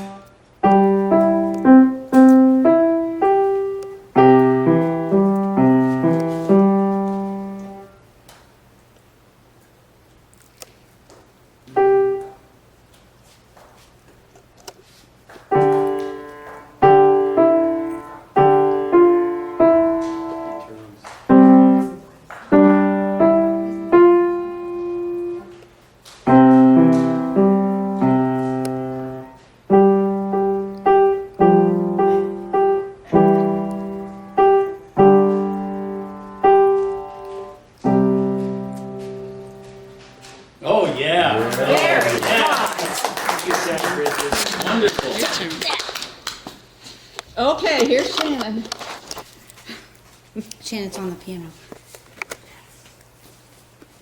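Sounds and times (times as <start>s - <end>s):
piano played slowly: 0.0s - 8.0s, 11.7s - 12.5s, 15.5s - 40.6s.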